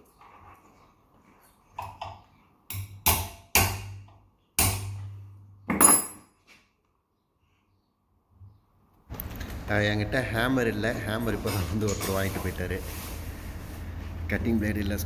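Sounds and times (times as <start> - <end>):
metal-on-metal tapping: 1.8 - 6.2.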